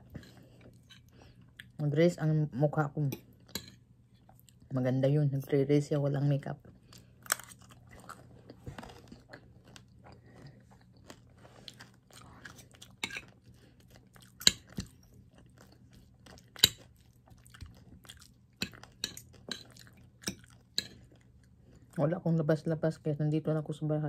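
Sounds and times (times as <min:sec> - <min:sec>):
person chewing food: 0:00.0 - 0:01.8, 0:03.3 - 0:04.7, 0:06.6 - 0:22.0
low steady hum: 0:00.0 - 0:24.0.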